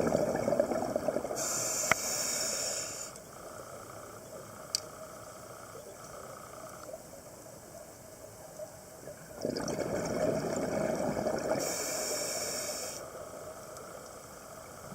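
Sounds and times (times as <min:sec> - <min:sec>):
underwater gurgling bubbles: 0:00.0 - 0:02.1, 0:09.0 - 0:12.6.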